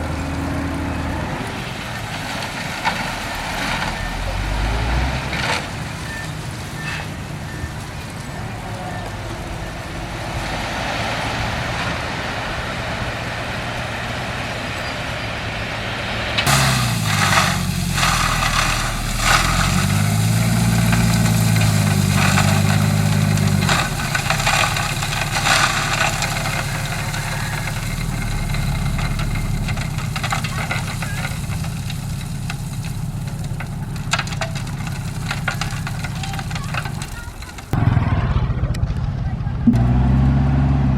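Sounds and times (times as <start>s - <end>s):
diesel engine revving: 0.0s - 40.9s
metallic clanks and rattles: 16.4s - 37.8s.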